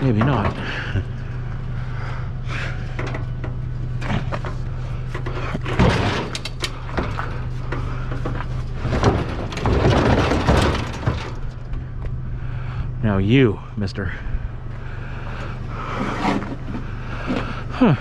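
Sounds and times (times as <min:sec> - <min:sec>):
truck idling hum: 0:00.0 - 0:18.0
scrap metal scraping and knocking: 0:02.9 - 0:11.7.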